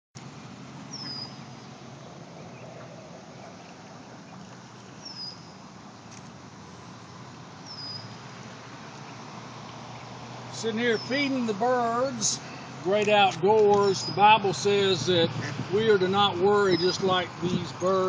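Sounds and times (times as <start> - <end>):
small bird whistling call: 0.9 - 1.4, 7.6 - 8.1.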